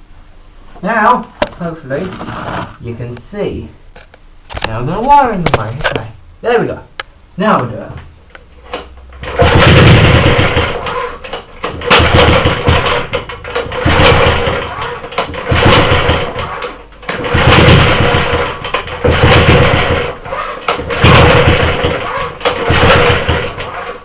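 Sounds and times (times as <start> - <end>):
engine pull-start cranking: 8.7 - 24.0.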